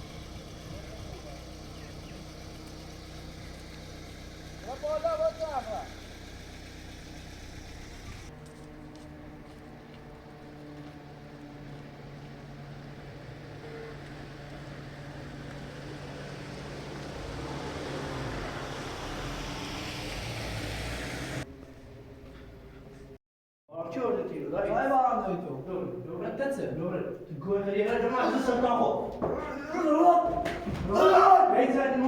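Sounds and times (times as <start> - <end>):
vehicle engine running: 0.0 - 23.1.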